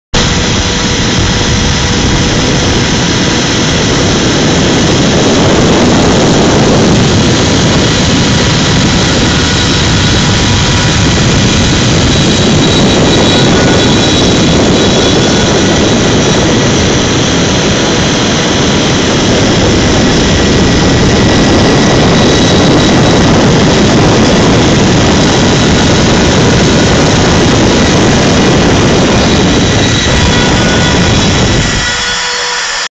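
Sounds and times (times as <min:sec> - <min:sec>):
cnc machine whine: 0:00.1 - 0:32.9.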